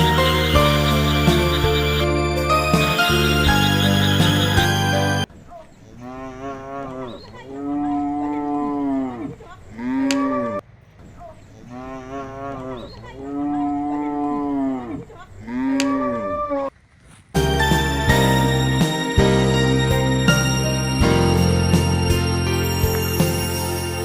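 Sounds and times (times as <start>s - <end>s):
cattle mooing: 11.5s - 16.7s.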